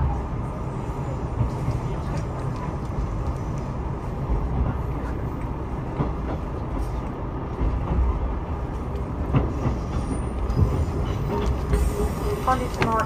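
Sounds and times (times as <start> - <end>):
train rumble from inside car: 0.0 - 13.0
wheels clacking over rail joints: 9.0 - 13.0.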